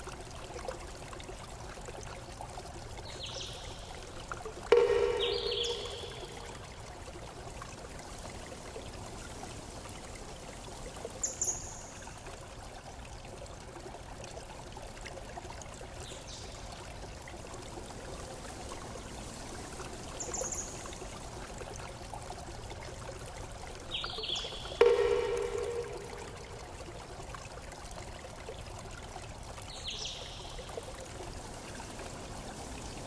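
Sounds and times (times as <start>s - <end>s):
running water trickling: 0.0s - 33.0s.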